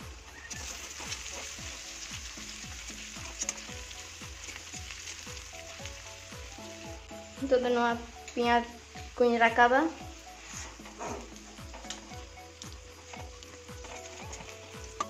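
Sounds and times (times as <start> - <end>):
onions sizzling in hot oil: 0.0 - 15.0
steel spatula scraping a pan: 0.5 - 4.7, 10.2 - 12.1.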